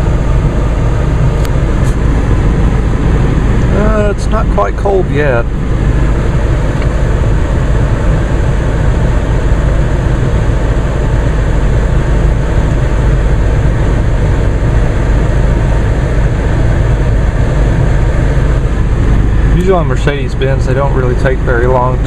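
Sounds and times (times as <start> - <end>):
climate blower running: 0.0 - 22.0
diesel engine idling: 0.0 - 22.0.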